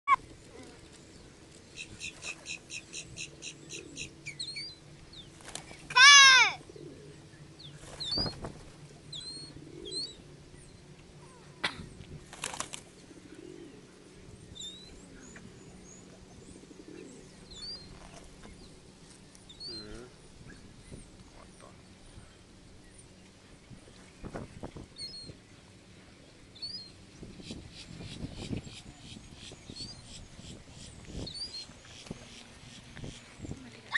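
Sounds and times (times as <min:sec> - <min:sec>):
birds chirping: 0:00.1 - 0:33.9
birds flapping wings: 0:00.5 - 0:02.6, 0:05.3 - 0:06.2, 0:07.7 - 0:09.0, 0:12.1 - 0:13.0.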